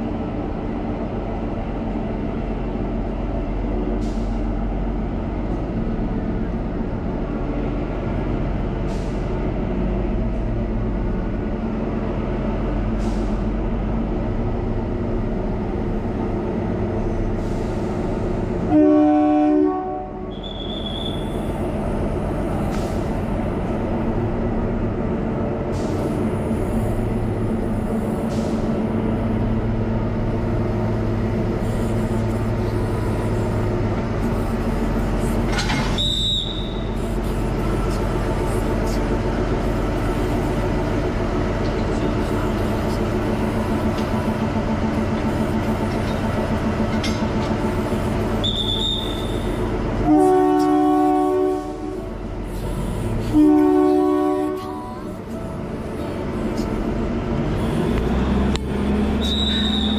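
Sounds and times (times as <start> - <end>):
train running with a rumble: 0.0 - 59.9
train horn: 18.6 - 21.2, 48.4 - 52.1, 53.2 - 55.1
high-pitched squeals: 59.1 - 59.9.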